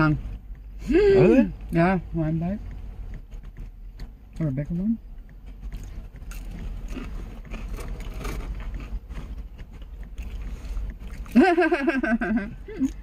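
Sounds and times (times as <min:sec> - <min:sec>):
low rumble in truck cab: 0:00.0 - 0:13.0
chewing and mouth noises: 0:02.6 - 0:11.6.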